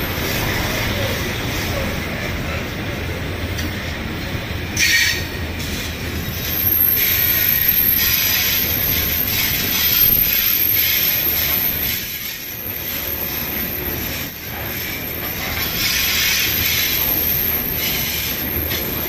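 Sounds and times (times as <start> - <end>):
freight wagons rumbling past: 0.0 - 19.0
high wheel screech: 4.8 - 19.0
high wheel squeal: 4.8 - 19.0.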